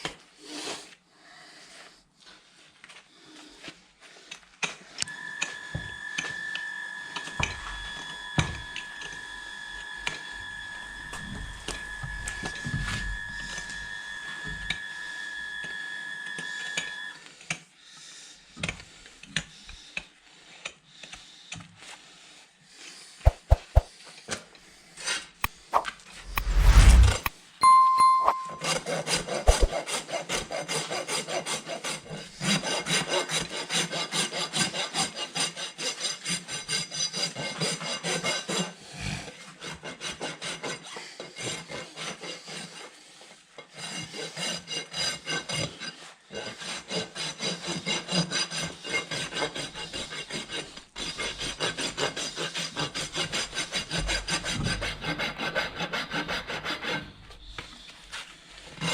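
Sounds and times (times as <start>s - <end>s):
rasp filing a hoof: 29.8s - 58.9s.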